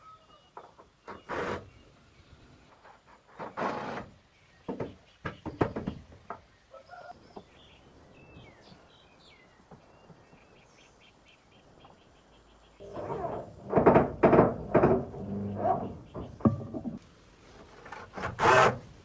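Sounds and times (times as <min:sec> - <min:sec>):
sharp knocks and clatter: 0:12.8 - 0:17.0.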